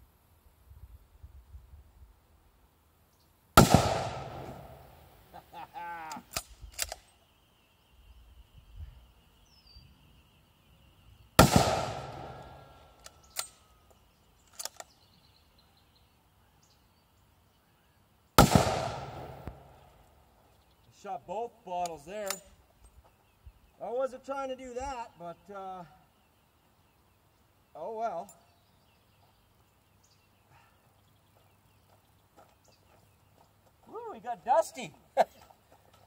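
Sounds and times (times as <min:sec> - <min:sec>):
rifle shots with echo: 0:03.6 - 0:05.0, 0:11.4 - 0:12.8, 0:18.4 - 0:19.8.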